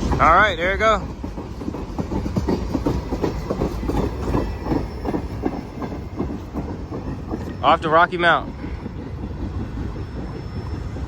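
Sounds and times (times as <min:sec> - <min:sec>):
low rumble of freight train: 0:00.0 - 0:11.0
train wheels clacking over rail joints: 0:00.0 - 0:11.0.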